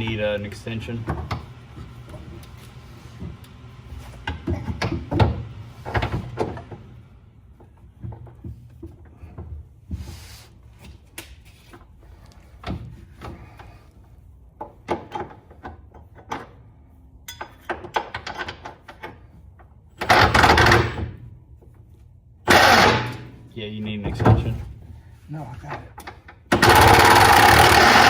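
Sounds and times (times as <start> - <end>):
loud harsh noise: 22.5 - 23.2, 26.6 - 28.0.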